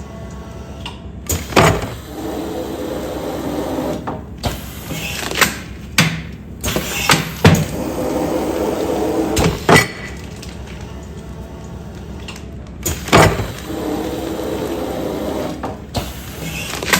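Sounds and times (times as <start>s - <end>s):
sealing machine motor running: 1.3s - 16.9s
sealing machine clunks: 3.9s - 7.8s, 9.3s - 11.0s, 12.2s - 14.8s, 15.4s - 16.9s.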